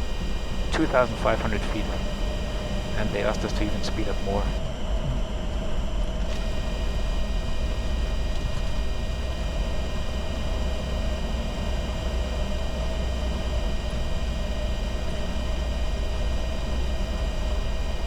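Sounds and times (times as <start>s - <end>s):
faint high whines: 0.0s - 4.6s
cockpit airflow and engine rumble: 0.0s - 5.2s.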